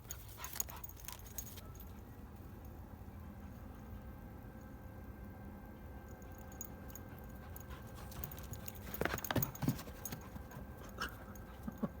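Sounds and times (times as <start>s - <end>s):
deer hooves on hard ground: 7.7s - 11.0s.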